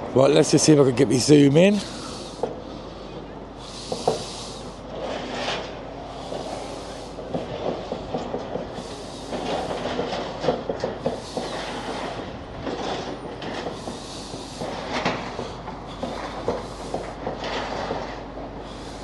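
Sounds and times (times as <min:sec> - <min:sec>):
steady background rumble: 0:00.0 - 0:19.0
masonry clattering and crunching: 0:06.4 - 0:18.3.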